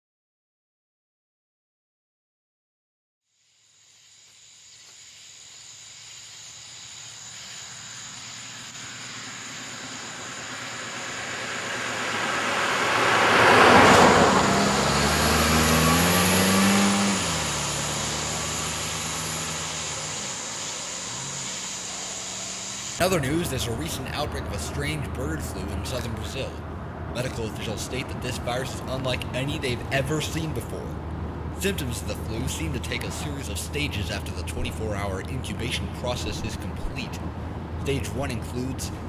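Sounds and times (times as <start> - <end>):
vehicle passing: 8.4 - 39.0.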